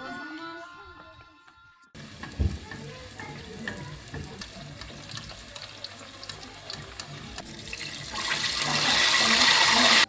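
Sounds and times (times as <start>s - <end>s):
water running: 2.0s - 10.0s.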